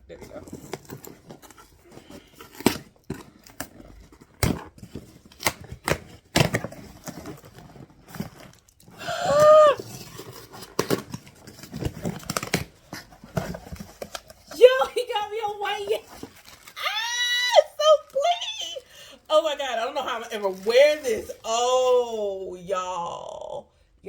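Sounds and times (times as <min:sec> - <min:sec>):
cardboard tearing and rustling: 0:00.1 - 0:18.9, 0:19.8 - 0:21.5.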